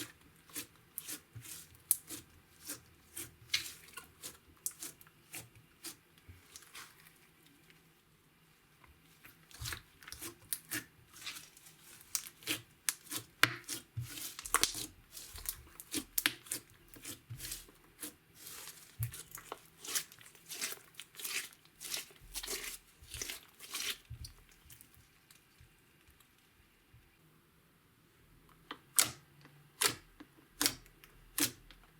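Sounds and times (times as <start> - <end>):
slime crackling and popping: 9.6 - 24.4.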